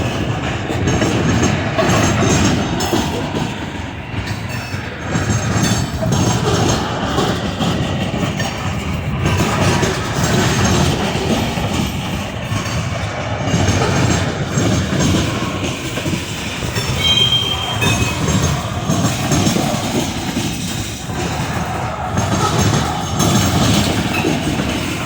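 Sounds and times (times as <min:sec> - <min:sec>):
train wheels clattering on rails: 0:00.0 - 0:25.0
high wheel squeal: 0:16.1 - 0:25.0.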